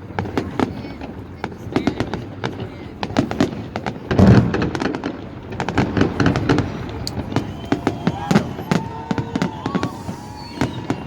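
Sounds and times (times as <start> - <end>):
fireworks bangs and crackles: 0.0 - 11.0
heavy firework boom: 3.2 - 11.0.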